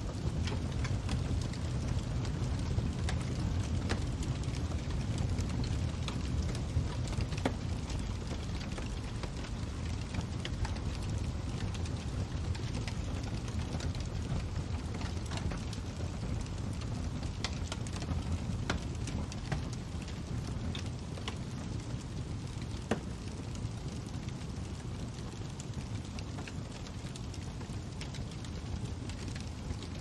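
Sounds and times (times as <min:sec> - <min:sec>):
fire crackling: 0:00.0 - 0:30.0
low rushing of fire: 0:00.0 - 0:30.0.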